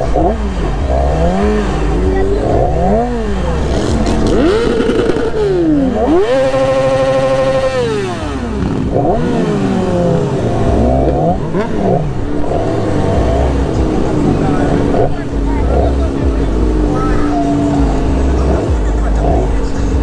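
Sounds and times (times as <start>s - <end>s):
motorbike engines revving: 0.0s - 20.0s.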